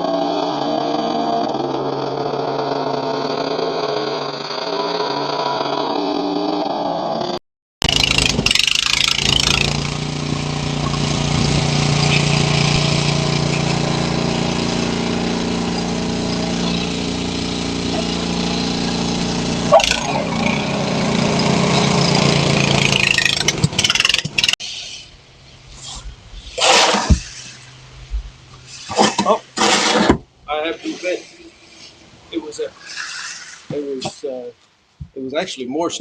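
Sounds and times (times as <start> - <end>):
snowblower engine running: 7.8 - 24.6
hiss of thrown snow: 24.6 - 27.8.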